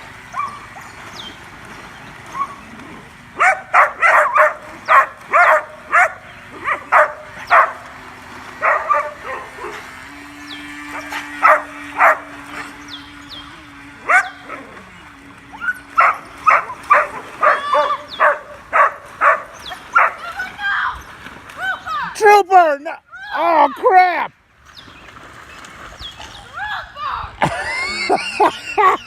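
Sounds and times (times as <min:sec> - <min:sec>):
steady low hum: 0:00.0 - 0:29.0
dog barking: 0:03.4 - 0:07.8, 0:08.6 - 0:09.8, 0:11.4 - 0:12.3, 0:14.1 - 0:14.4, 0:16.0 - 0:20.2.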